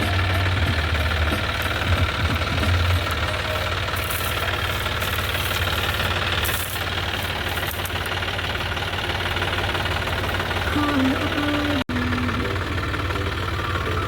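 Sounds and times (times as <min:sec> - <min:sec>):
straw reaper mechanical clatter: 0:00.0 - 0:10.9
tractor diesel engine running: 0:00.0 - 0:14.0.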